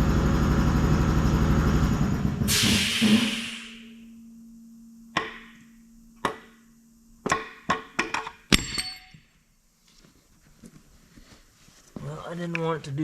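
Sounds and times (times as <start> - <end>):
hissing noise: 2.5 - 4.0
faint steady hum: 2.7 - 13.0
metallic clanks on engine parts: 7.2 - 9.3.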